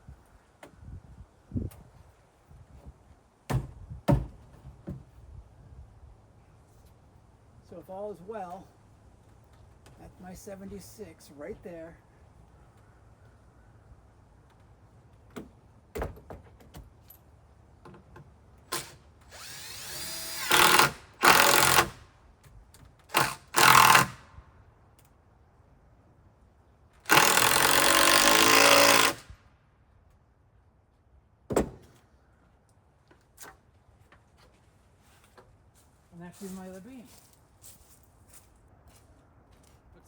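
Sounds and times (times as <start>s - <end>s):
knocks of wood: 3.5s - 5.1s, 15.3s - 16.9s, 31.5s - 32.0s
power drill driving screw into wood: 18.7s - 22.0s, 23.0s - 24.3s, 27.0s - 29.3s.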